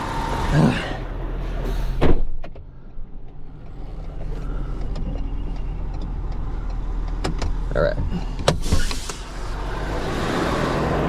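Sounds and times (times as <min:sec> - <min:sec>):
idling engine hum: 0:00.0 - 0:02.0, 0:02.6 - 0:11.0
car door shutting: 0:01.7 - 0:02.7, 0:07.2 - 0:09.3.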